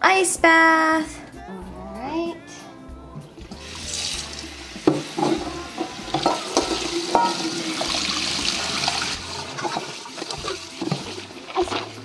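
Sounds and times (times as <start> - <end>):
tap water running into a bowl: 3.4 - 12.0.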